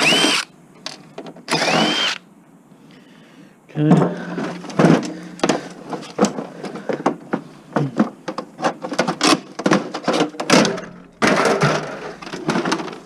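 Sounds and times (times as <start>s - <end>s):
plastic and metal parts clattering: 3.9s - 13.0s.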